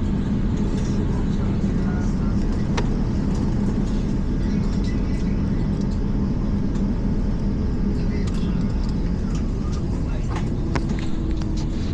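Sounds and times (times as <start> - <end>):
airplane cabin rumble: 0.0 - 11.9.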